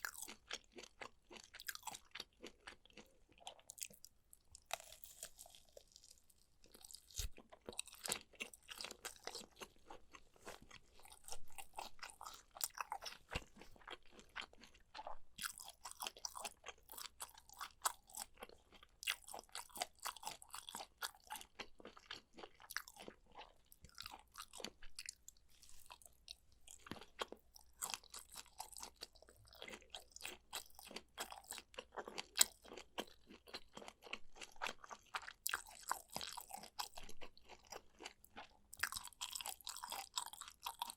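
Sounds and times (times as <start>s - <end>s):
crisp crunching of food: 0.0s - 40.9s
wet chewing: 0.0s - 40.9s.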